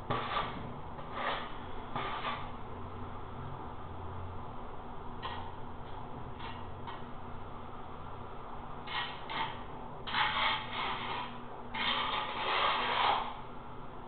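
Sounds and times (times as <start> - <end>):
scraping on a hard surface: 0.1 - 2.6, 8.9 - 13.4.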